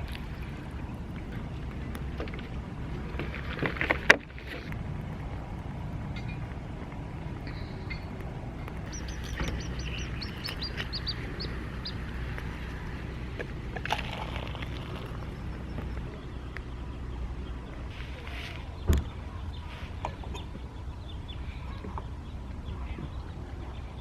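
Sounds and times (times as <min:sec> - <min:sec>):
steady low rumble: 0:00.0 - 0:24.0
small bird chirping: 0:08.8 - 0:13.1.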